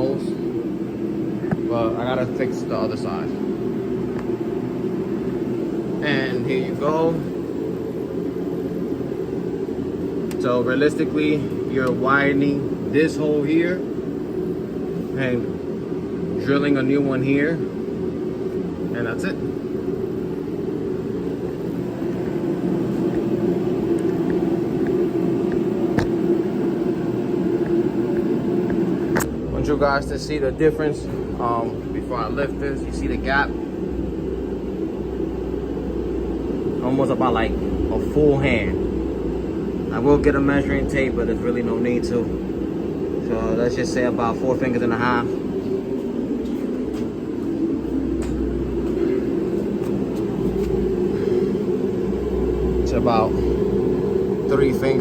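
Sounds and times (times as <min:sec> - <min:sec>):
low droning noise: 0:00.0 - 0:55.0
mechanical hum: 0:00.0 - 0:55.0
low rumble: 0:29.5 - 0:55.0.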